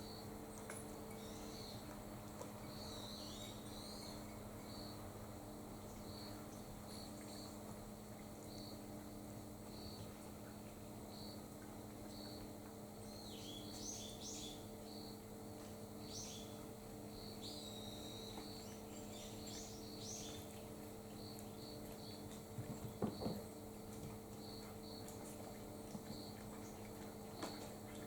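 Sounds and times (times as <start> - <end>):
small birds chirping: 0.0 - 2.0, 2.6 - 5.0, 12.1 - 15.2, 16.0 - 28.0.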